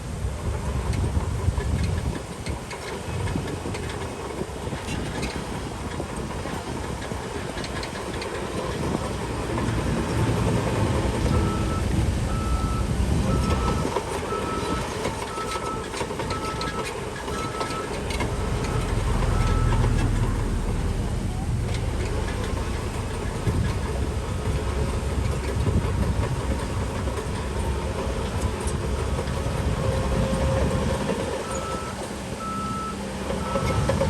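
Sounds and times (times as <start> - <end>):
diesel machinery engine rumble: 0.0 - 34.0
metallic clanking: 7.5 - 32.6
reversing alarm beeping: 11.2 - 22.6, 30.2 - 34.0.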